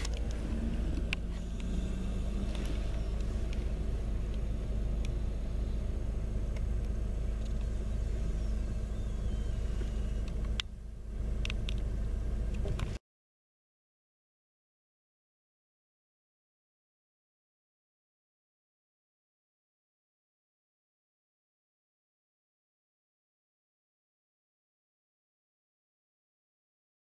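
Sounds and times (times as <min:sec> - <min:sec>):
scattered clicks: 0:00.0 - 0:05.2, 0:06.5 - 0:07.8, 0:09.6 - 0:10.8, 0:11.4 - 0:11.9
road vehicle rumbling past: 0:00.0 - 0:13.0.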